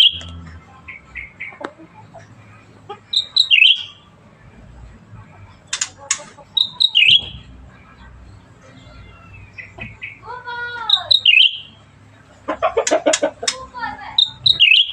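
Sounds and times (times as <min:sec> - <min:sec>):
bulbul singing bright chirps: 0:03.1 - 0:04.0, 0:05.7 - 0:07.5, 0:09.2 - 0:11.8, 0:14.1 - 0:14.9
sharp clicks: 0:05.7 - 0:06.4, 0:12.8 - 0:14.6.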